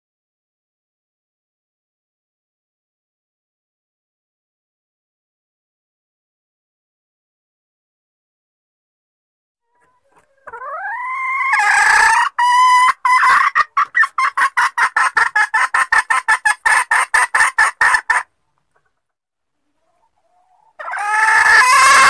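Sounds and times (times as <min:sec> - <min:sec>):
junglefowl hen calling: 0:09.7 - 0:18.9, 0:19.6 - 0:22.0.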